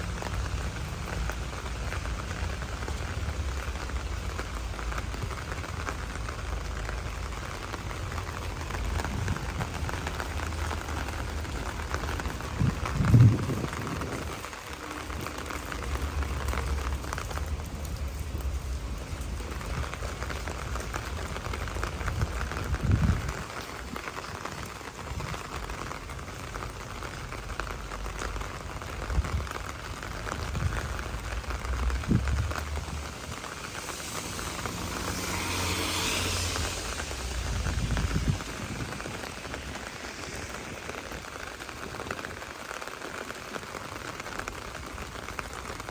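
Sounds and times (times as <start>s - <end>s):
steady rain falling: 0.0s - 45.9s
low rumble: 30.6s - 40.0s.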